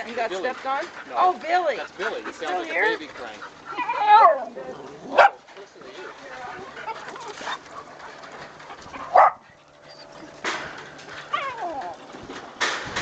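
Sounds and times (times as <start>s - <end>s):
dogs barking and yelping: 0.4s - 5.4s, 6.6s - 12.2s
dog whining cry: 3.6s - 4.6s, 8.9s - 10.4s, 11.3s - 12.1s.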